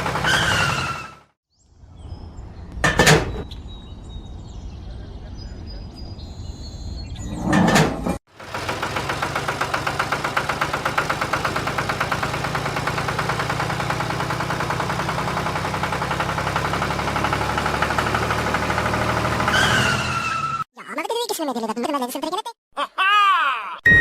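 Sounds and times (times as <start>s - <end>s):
tractor engine idling: 0.0s - 0.8s, 8.3s - 19.5s.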